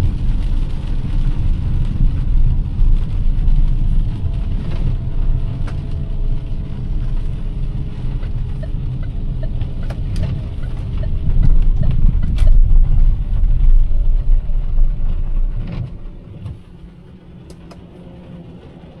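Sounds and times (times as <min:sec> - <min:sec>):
car engine and road noise rumble: 0:00.0 - 0:19.0
low hum: 0:00.0 - 0:19.0
rain ticks: 0:00.0 - 0:19.0.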